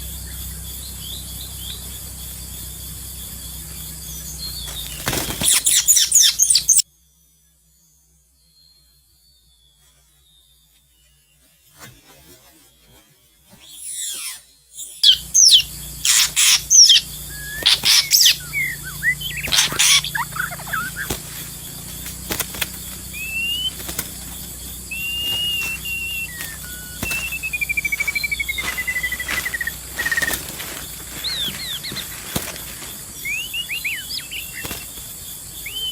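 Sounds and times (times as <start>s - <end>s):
songbird calling: 0.0s - 6.8s, 13.6s - 35.9s
bird trill falling in pitch: 14.0s - 35.9s.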